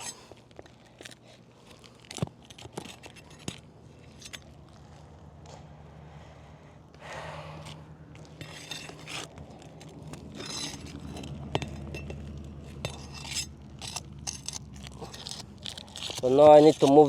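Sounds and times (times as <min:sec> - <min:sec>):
pry bar scraping under shingles: 0:00.0 - 0:05.0, 0:07.6 - 0:17.0
steady low hum: 0:00.0 - 0:17.0.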